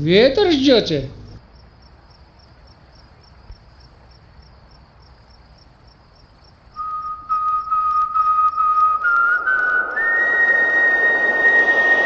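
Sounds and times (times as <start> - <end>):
crickets chirping: 0.0 - 12.0
person whistling a long note: 6.8 - 12.0.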